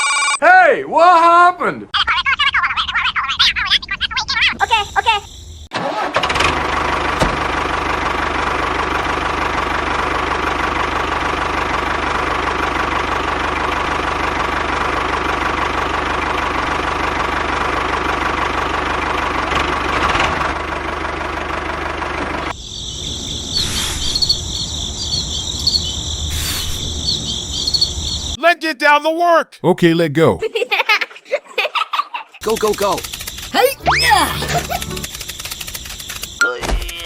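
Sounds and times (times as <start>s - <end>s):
crickets chirping: 4.3s - 5.7s, 22.5s - 28.4s, 32.4s - 36.5s
small engine running: 32.4s - 36.4s.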